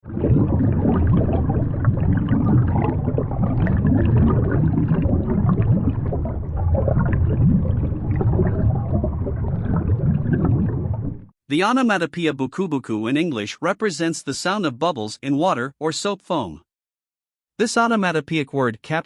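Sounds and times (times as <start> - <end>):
water bubbling and gurgling: 0.0 - 11.4.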